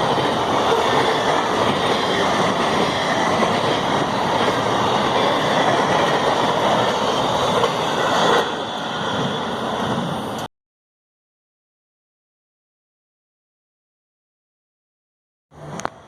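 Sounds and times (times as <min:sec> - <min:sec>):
train rolling on rails: 0:00.0 - 0:10.5, 0:15.5 - 0:16.0.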